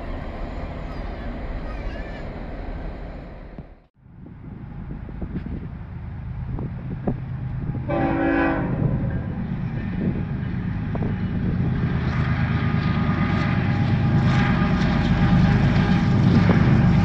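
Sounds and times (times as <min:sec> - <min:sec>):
train rumbling: 0:00.0 - 0:17.0
locomotive horn blast: 0:07.7 - 0:09.4.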